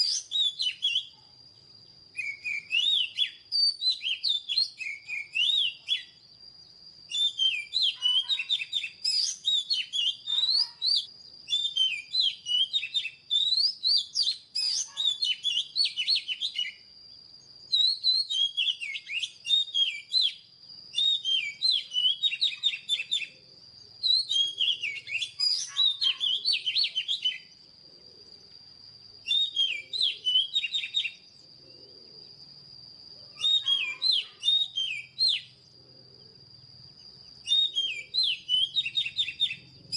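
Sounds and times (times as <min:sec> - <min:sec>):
bird singing whistles: 0:00.0 - 0:01.2, 0:02.1 - 0:23.4, 0:24.0 - 0:27.6, 0:29.2 - 0:31.4, 0:33.3 - 0:35.7, 0:37.2 - 0:39.9.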